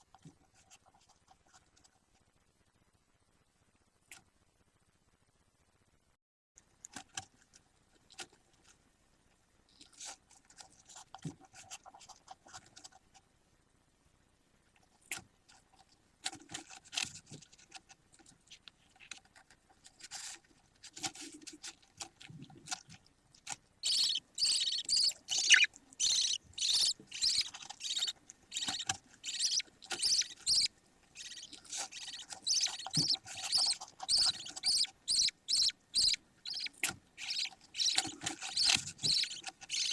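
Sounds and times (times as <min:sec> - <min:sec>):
budgerigar chick cheeping: 0:23.8 - 0:39.9.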